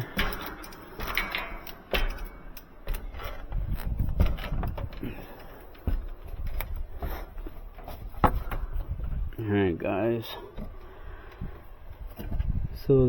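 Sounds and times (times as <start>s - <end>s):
knocks and thumps: 0.0s - 9.3s.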